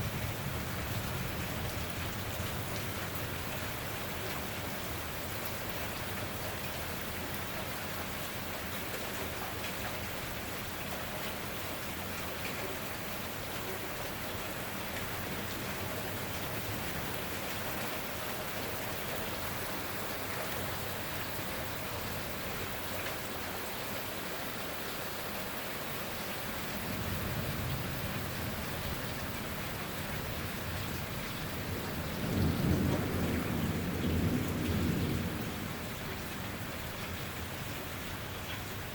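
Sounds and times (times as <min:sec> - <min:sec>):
heavy rain: 0:00.0 - 0:38.9
thunder rumbling: 0:26.8 - 0:38.9.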